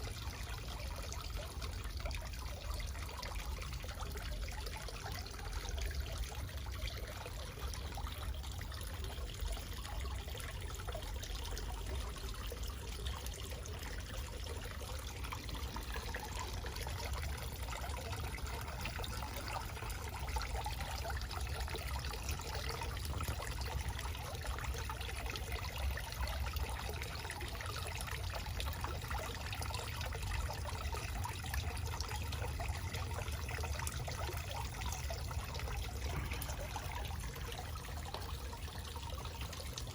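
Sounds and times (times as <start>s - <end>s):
waterfall trickling and splashing: 0.0s - 39.9s.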